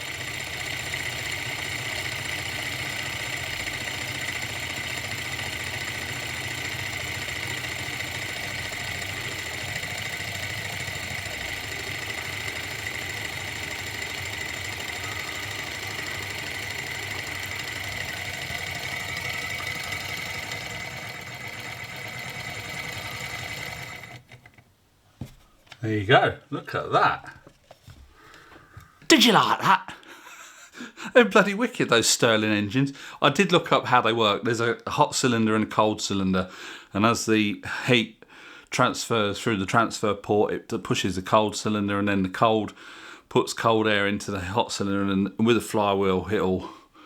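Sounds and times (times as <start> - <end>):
model engine high whine: 0.0 - 24.6.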